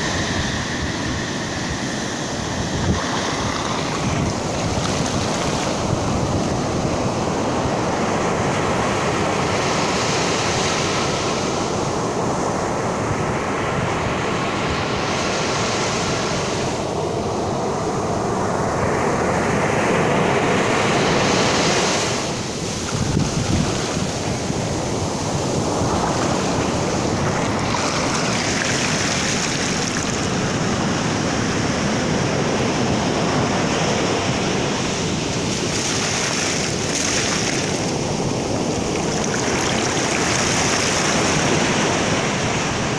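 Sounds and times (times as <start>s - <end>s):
rumble of water: 0.0s - 9.5s, 22.4s - 42.9s
wind buffeting microphone: 0.0s - 14.2s, 16.9s - 42.9s
waves breaking on sand: 0.0s - 42.9s.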